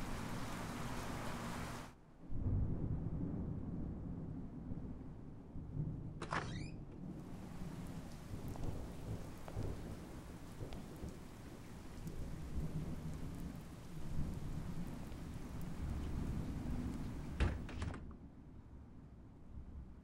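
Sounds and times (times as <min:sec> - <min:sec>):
steady rain: 0:00.0 - 0:02.6, 0:06.9 - 0:18.0
thunder rumbling: 0:02.3 - 0:06.2, 0:07.0 - 0:17.8.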